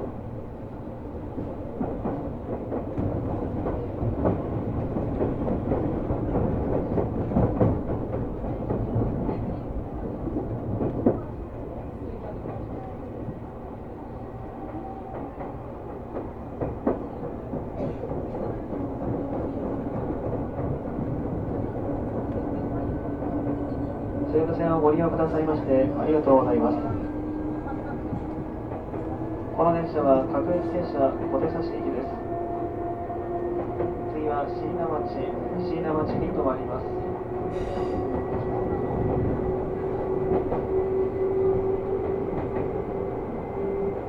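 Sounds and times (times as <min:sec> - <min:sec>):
train car rumble: 0:00.0 - 0:44.0.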